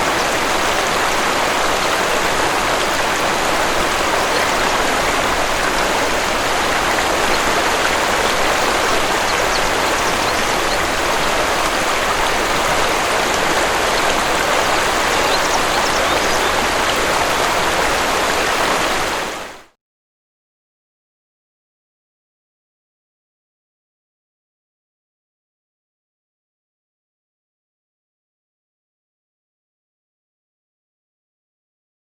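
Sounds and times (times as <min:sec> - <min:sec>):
waterfall rushing water: 0:00.0 - 0:19.8.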